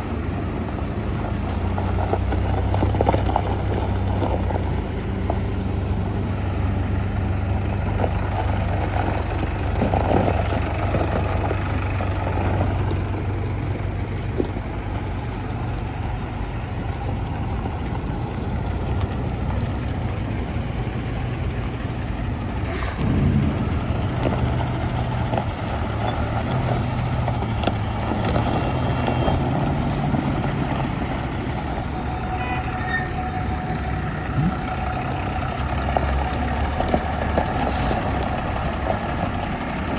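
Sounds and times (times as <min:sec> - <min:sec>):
heavy diesel engines running: 0:00.0 - 0:39.9
sudden sharp noise: 0:22.7 - 0:26.0.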